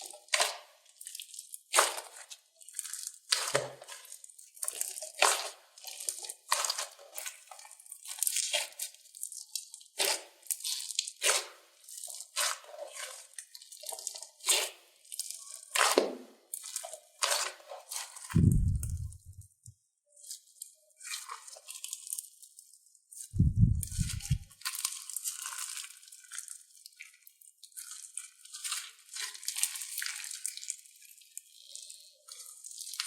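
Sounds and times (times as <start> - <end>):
slime squeezed and stretched by hand: 23.4 - 24.5.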